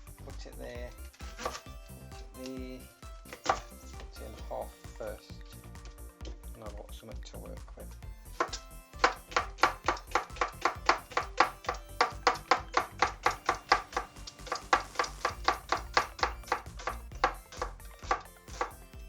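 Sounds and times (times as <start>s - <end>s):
knife chopping on chopping board: 1.3s - 1.6s, 8.4s - 18.8s.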